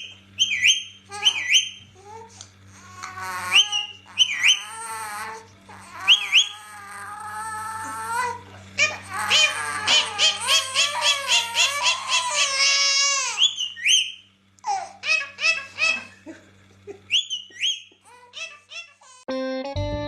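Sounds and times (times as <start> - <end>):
parrot upward-sliding whistles: 0.0 - 1.8, 3.5 - 4.7, 6.0 - 6.7, 13.3 - 14.3, 17.1 - 17.9
parrot vocalising: 0.0 - 16.4, 17.0 - 19.2.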